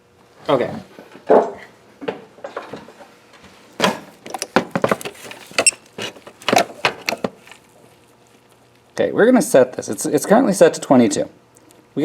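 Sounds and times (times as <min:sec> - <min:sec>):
tools clicking and clattering: 0:04.2 - 0:07.6.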